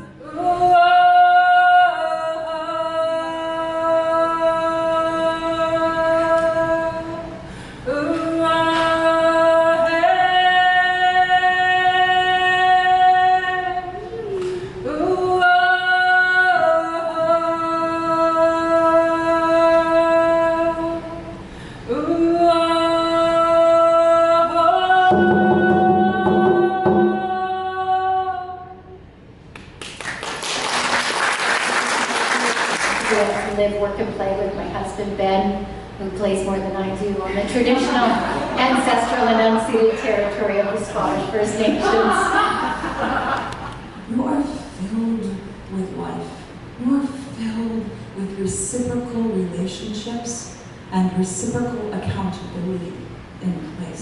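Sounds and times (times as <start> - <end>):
person singing unaccompanied: 21.9 - 29.0
applause: 29.6 - 33.5.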